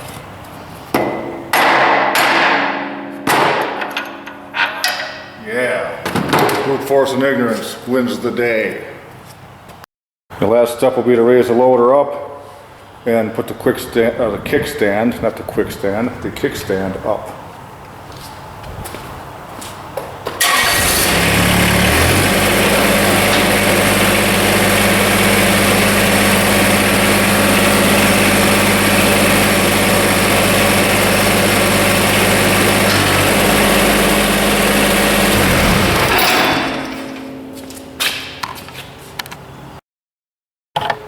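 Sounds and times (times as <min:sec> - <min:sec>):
diesel tractor engine running: 0:20.4 - 0:38.0.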